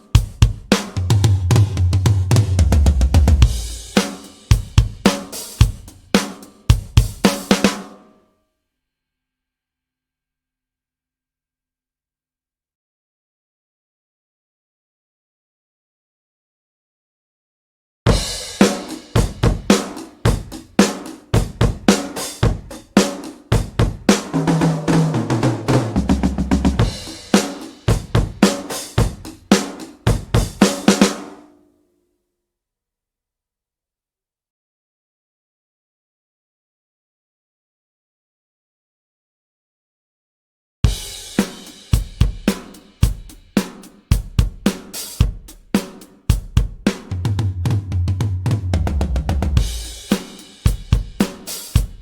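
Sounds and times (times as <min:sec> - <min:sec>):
acoustic drum kit pattern: 0:00.0 - 0:08.1, 0:18.1 - 0:31.4, 0:40.9 - 0:52.0.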